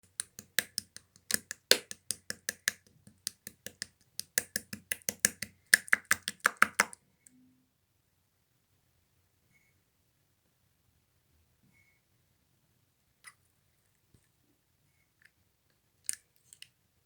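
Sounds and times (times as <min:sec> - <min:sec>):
slime clicking and popping: 0:00.0 - 0:07.0.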